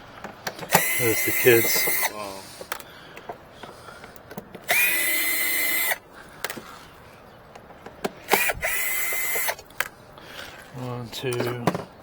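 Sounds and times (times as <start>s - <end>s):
cordless drill whirring: 0.6s - 2.4s, 4.6s - 6.0s, 8.2s - 9.7s.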